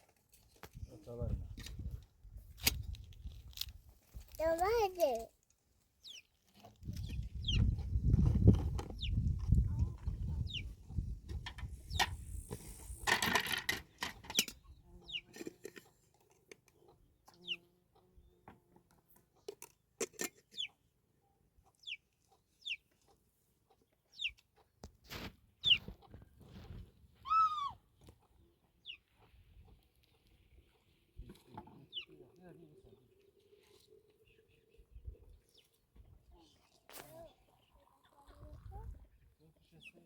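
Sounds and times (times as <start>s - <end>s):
chicks peeping: 6.0s - 11.1s, 14.3s - 15.3s, 16.8s - 18.1s, 20.6s - 20.8s, 21.6s - 24.7s, 25.6s - 31.0s, 31.9s - 32.2s
chicken drawn-out call: 27.2s - 27.8s.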